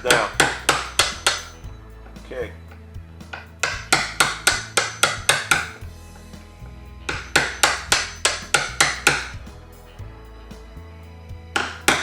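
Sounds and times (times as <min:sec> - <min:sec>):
hammer striking a chisel: 0:00.0 - 0:06.4, 0:07.1 - 0:09.4, 0:11.6 - 0:12.0.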